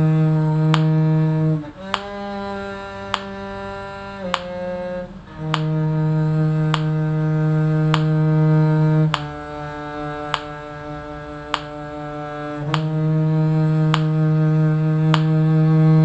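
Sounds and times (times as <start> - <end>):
muted bowed strings: 0.0 - 16.0
sharp click beat: 1.9 - 2.2, 3.1 - 3.3, 4.3 - 4.6, 5.4 - 5.8, 6.6 - 7.0, 7.9 - 8.2, 9.1 - 9.4, 10.3 - 10.6, 11.5 - 11.8, 12.7 - 13.0, 13.9 - 14.2.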